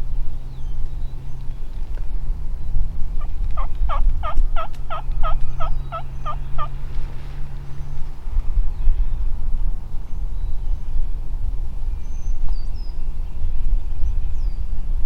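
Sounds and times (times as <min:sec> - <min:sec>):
steady low rumble: 0:00.0 - 0:15.0
turkey yelps: 0:03.6 - 0:06.7.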